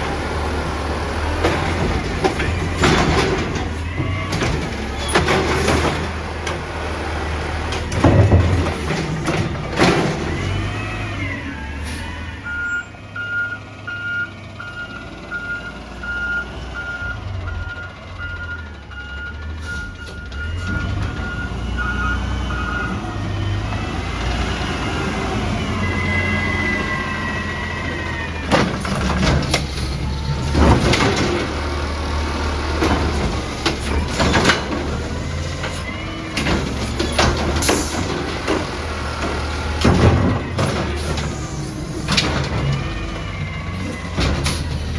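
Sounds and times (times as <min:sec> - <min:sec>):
garbage truck engine running: 0:00.0 - 0:44.9
loud metal bangs and clanks: 0:01.3 - 0:06.6, 0:07.6 - 0:10.8, 0:27.4 - 0:32.0, 0:32.6 - 0:44.9
reversing alarm beeping: 0:11.2 - 0:23.4.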